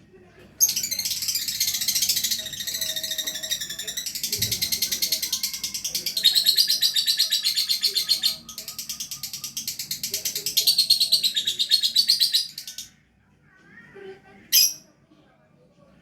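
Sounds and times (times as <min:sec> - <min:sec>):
lovebird chattering: 0:00.6 - 0:12.9.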